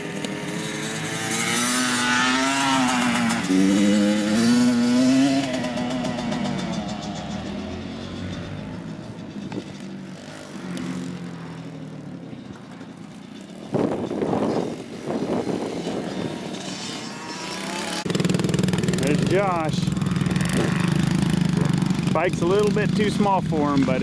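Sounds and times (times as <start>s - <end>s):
dirt bike engine revving: 0.0s - 24.0s
rough rushing noise: 13.5s - 24.0s.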